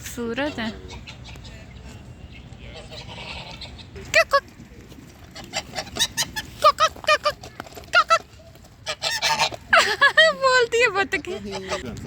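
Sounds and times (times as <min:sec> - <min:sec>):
waterfowl calling: 0:00.2 - 0:04.3, 0:08.8 - 0:10.1.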